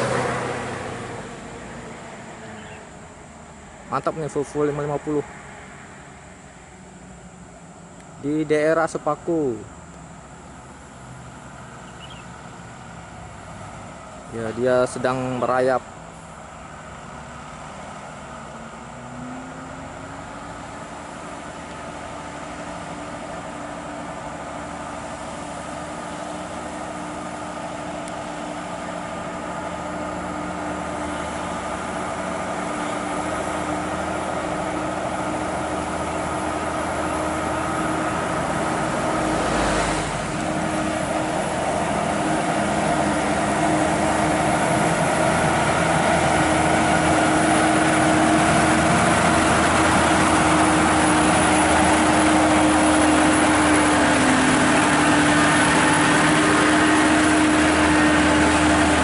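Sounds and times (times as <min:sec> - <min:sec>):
truck diesel engine labouring: 0:00.0 - 0:59.0.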